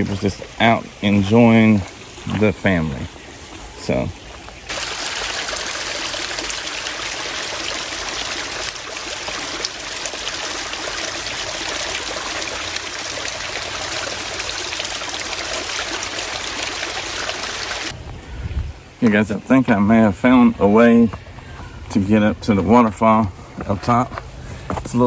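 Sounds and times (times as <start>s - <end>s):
stream of water running: 0.0s - 18.1s.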